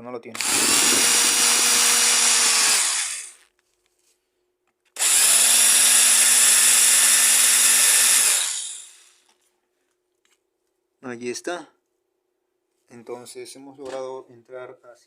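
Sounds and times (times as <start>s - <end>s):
electric drill drilling plastic: 0.4s - 3.5s, 5.0s - 9.3s.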